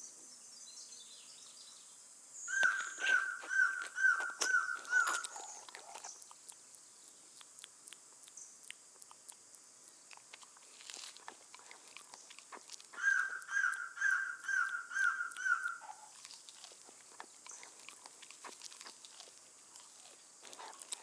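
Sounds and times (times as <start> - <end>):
animal repeated pitched calls: 2.5 - 6.0, 12.5 - 16.2
light ticks and rustles: 2.6 - 13.0.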